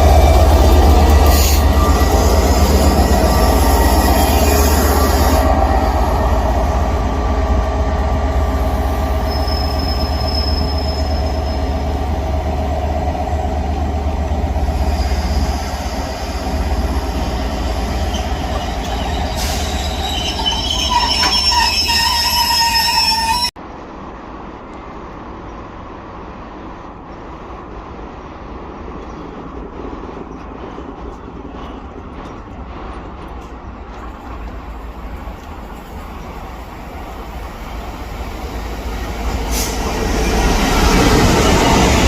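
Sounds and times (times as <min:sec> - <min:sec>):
train wheels rumbling: 0:00.0 - 0:42.0
high wheel squeal: 0:00.2 - 0:06.3, 0:08.8 - 0:12.0, 0:14.8 - 0:23.6.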